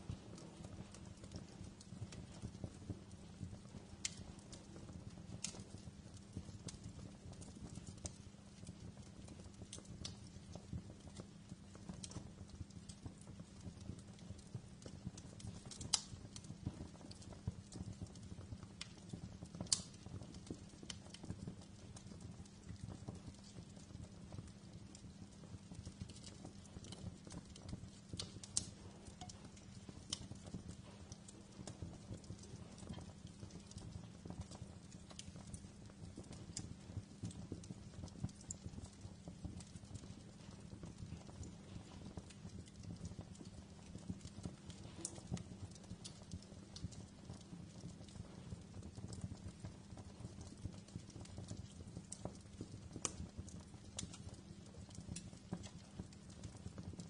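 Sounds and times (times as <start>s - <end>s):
loud fire pops: 0.0s - 57.0s
wood fire crackling: 0.0s - 57.0s.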